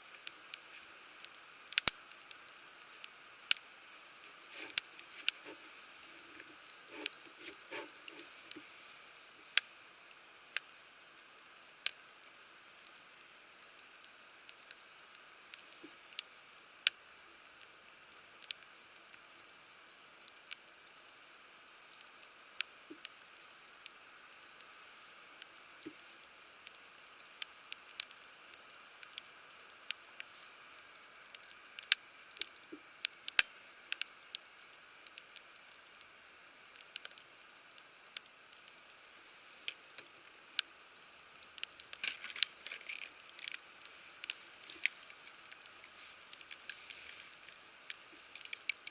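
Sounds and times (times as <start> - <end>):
soft fire hiss: 0.0 - 48.9
wood fire pops: 1.7 - 2.3.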